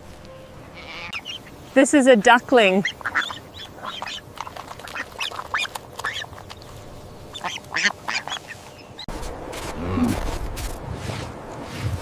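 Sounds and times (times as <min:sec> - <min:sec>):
ducklings calling: 0:00.7 - 0:09.1.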